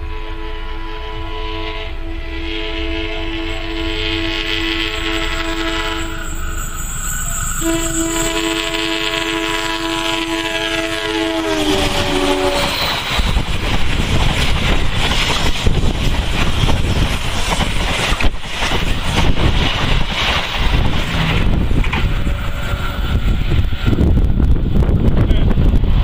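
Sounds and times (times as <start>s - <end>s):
train wheels rumbling on rails: 0.0s - 26.0s
wind buffeting microphone: 10.8s - 26.0s.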